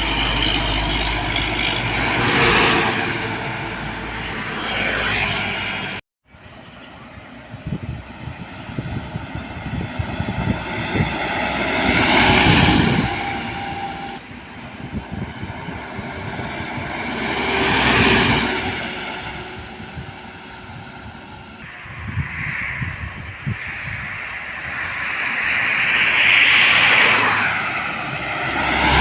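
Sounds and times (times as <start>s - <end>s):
large trucks passing: 0.0s - 29.0s
wind buffeting microphone: 6.5s - 26.4s.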